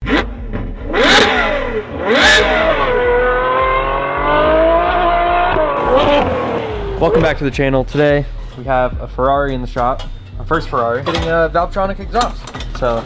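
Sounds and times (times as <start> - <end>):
sports car engine revving: 0.0 - 13.0.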